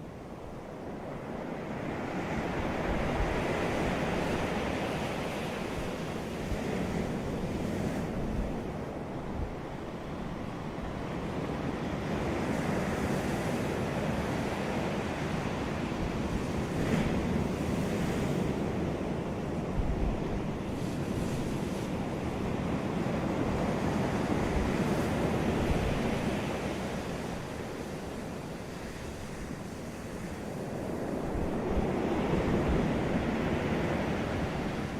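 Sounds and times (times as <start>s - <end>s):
wind on microphone: 0.7s - 34.9s.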